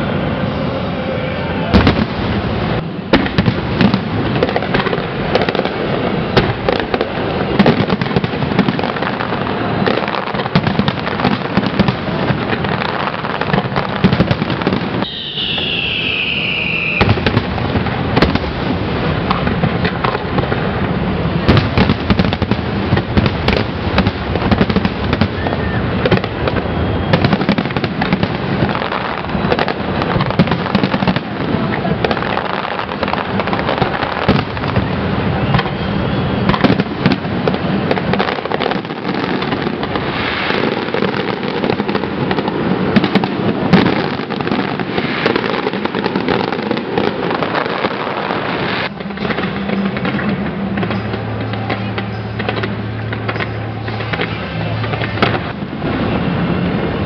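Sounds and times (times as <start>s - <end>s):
fireworks crackling: 0.0s - 57.0s
falling firework whistle: 12.8s - 18.4s, 23.2s - 31.7s, 32.4s - 57.0s.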